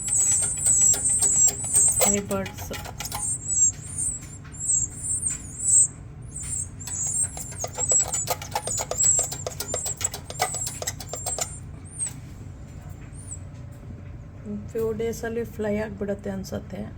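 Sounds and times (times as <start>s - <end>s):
nestlings cheeping: 0.0s - 13.5s.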